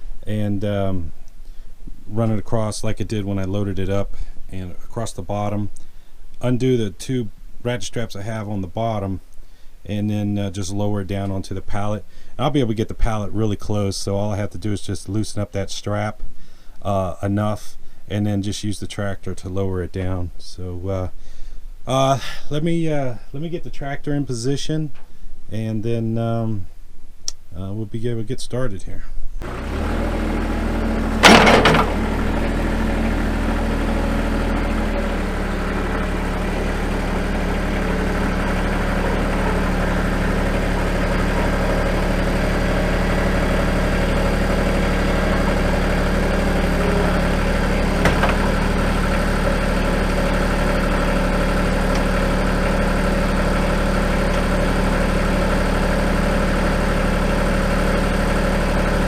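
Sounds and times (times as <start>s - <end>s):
loud clunk: 29.4s - 41.6s, 44.4s - 49.6s
tractor engine running: 29.4s - 59.0s.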